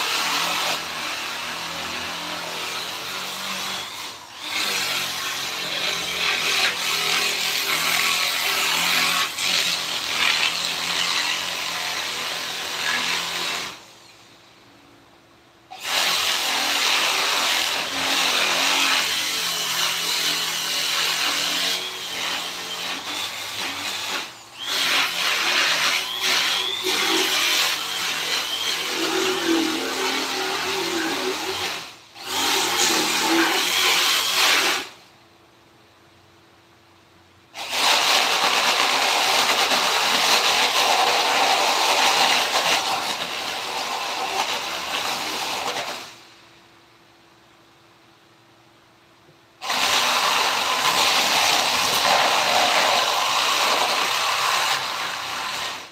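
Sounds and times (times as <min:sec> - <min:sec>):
power tool sanding wood: 0:15.8 - 0:34.9.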